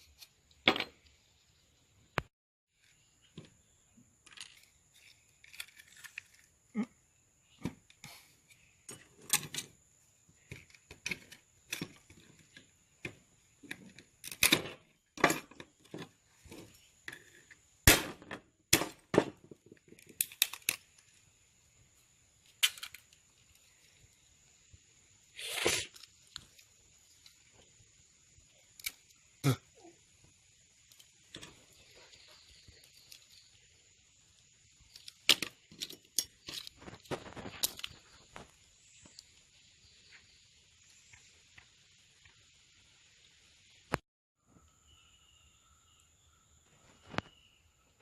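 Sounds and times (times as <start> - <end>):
small parts clicking and knocking: 4.2 - 6.6, 7.6 - 9.8, 10.4 - 17.7, 18.3 - 21.3, 22.4 - 24.1, 32.8 - 33.6, 34.9 - 38.5.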